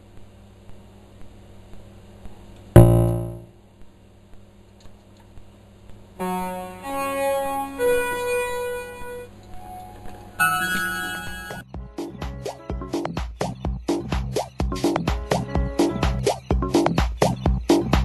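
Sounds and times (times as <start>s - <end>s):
electronic keyboard notes: 2.8s - 3.5s, 6.2s - 13.1s, 14.6s - 17.0s.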